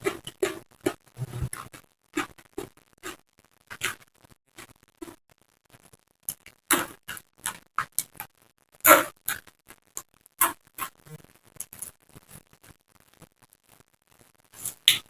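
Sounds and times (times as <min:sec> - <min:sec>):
chewing crisp raw vegetables: 0:00.0 - 0:04.0.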